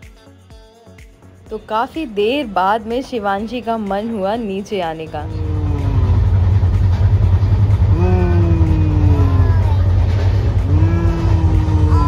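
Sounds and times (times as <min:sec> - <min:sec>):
train rumble inside coach: 0:02.8 - 0:12.0.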